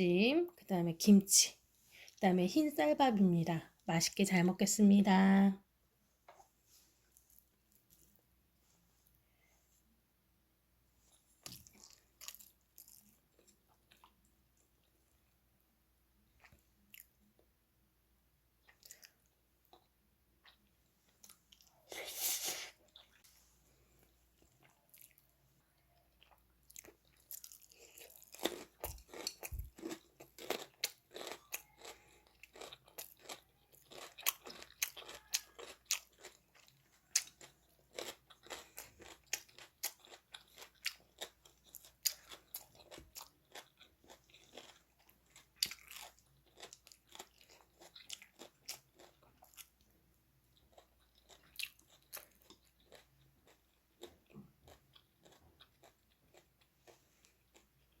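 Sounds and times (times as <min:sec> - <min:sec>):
person chewing crunchy food: 0:11.1 - 0:15.4, 0:18.6 - 0:23.2, 0:24.0 - 0:25.5, 0:26.1 - 0:58.0.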